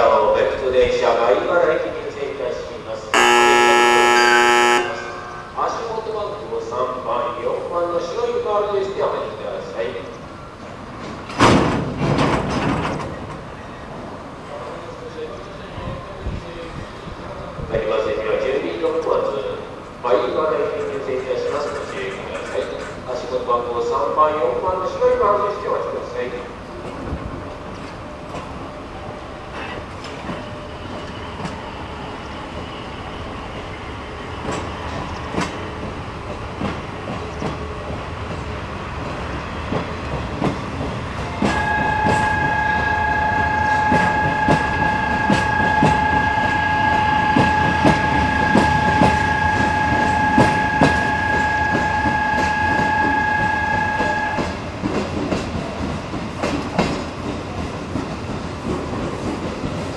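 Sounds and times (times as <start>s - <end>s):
freight train rolling on rails: 0.0s - 59.9s
steady high tone: 3.2s - 5.8s, 41.6s - 54.5s.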